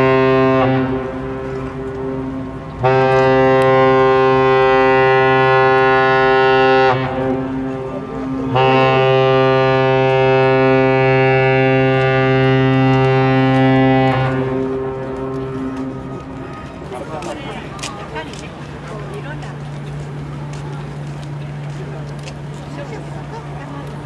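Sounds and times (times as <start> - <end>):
ship whistle blasts: 0.0 - 16.6.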